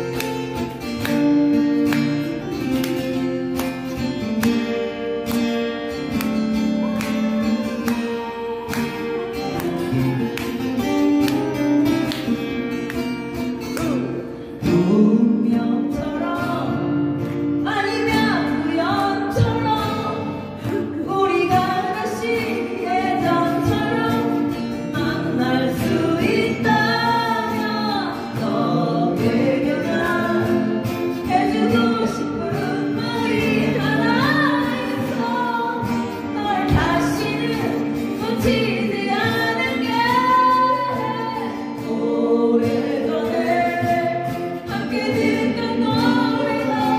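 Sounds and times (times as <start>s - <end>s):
acoustic guitar strumming: 0.0s - 46.9s
person singing: 13.7s - 17.0s.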